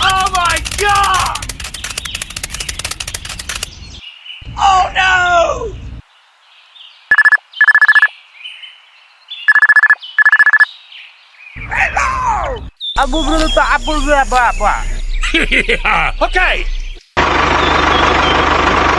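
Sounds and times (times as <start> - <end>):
rapid clicks: 0.0 - 3.8
telephone ringing tone: 7.1 - 8.1, 9.5 - 10.7.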